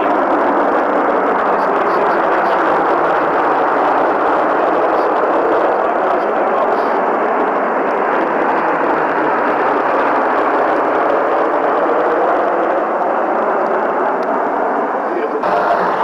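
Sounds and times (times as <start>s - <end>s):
aircraft engines roaring: 0.0s - 16.0s.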